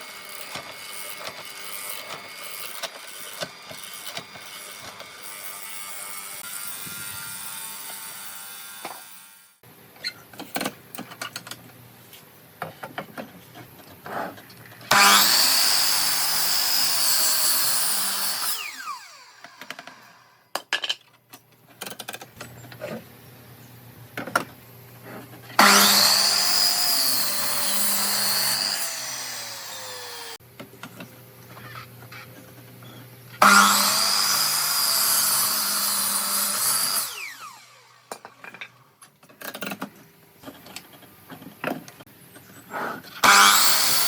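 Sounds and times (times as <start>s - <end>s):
power tool cutting into wood: 0.0s - 9.6s, 14.9s - 20.4s, 25.6s - 30.4s, 33.4s - 38.3s, 43.2s - 44.0s
clicks and knocks of tools and wood: 0.3s - 6.0s, 9.9s - 15.0s, 19.4s - 23.1s, 24.1s - 25.6s, 30.5s - 33.4s, 38.1s - 43.2s.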